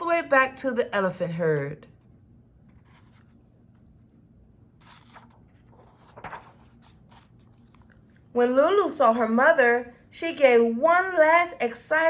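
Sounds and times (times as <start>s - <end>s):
low steady hum: 0.0s - 12.0s
paper rustle: 2.0s - 4.0s, 4.8s - 8.1s.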